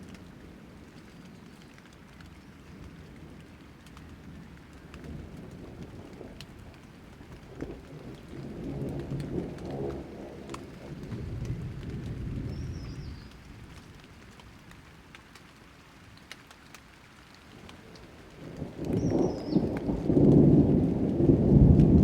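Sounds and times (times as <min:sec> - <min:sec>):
rain pattering: 0:00.0 - 0:22.0
thunder rumble: 0:05.0 - 0:14.1, 0:17.7 - 0:22.0.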